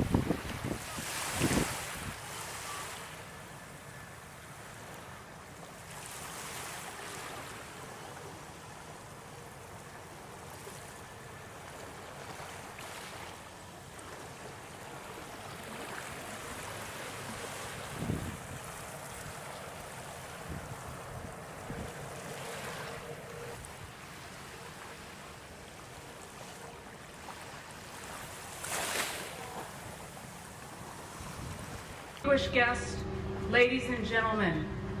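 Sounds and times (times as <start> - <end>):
water by the shore: 0.0 - 35.0
wind: 0.0 - 35.0.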